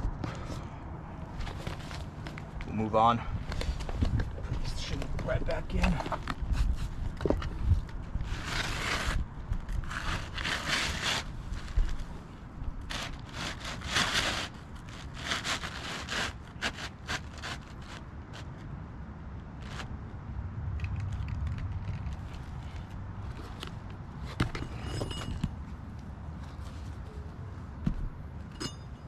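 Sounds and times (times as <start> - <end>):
shingle scraping: 3.5 - 18.7.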